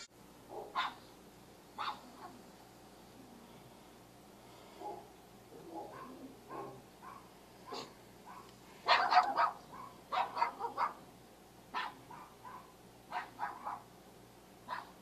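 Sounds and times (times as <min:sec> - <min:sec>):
dog barking: 0:00.5 - 0:01.1, 0:01.8 - 0:02.4, 0:04.8 - 0:11.1, 0:11.7 - 0:13.9, 0:14.6 - 0:15.0.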